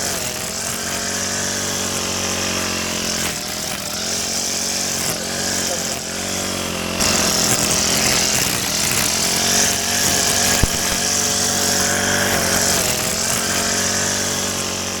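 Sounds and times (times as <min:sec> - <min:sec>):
small petrol engine cutting grass: 0:00.0 - 0:15.0
sharp click: 0:10.4 - 0:11.2.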